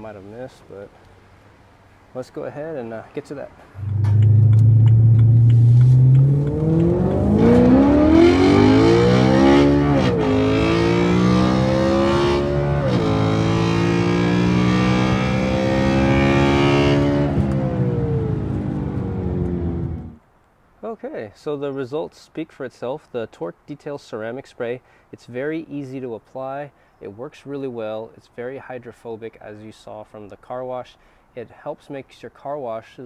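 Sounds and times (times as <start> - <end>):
car engine accelerating: 3.8 - 20.2.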